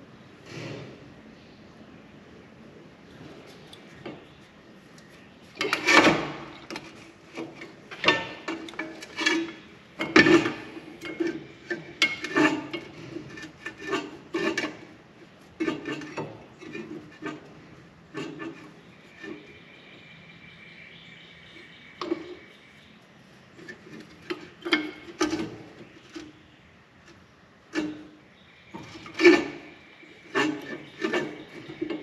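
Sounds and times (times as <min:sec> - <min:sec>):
scraping and rubbing strokes: 0:04.8 - 0:19.6, 0:27.7 - 0:28.2, 0:28.8 - 0:32.0.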